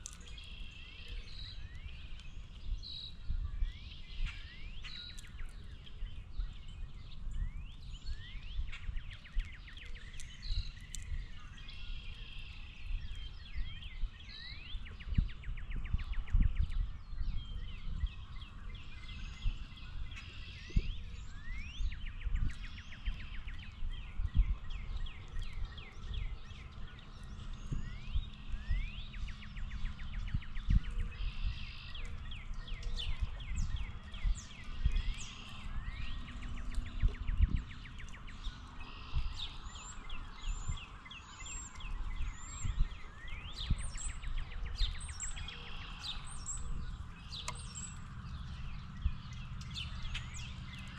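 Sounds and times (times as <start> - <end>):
small birds chirping: 0.0 - 50.9
low rumble: 42.2 - 50.9.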